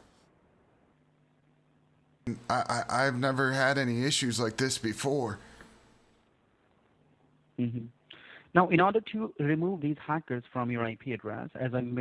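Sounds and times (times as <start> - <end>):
person speaking on phone: 2.3 - 5.6
faint phone line hum: 2.3 - 6.2.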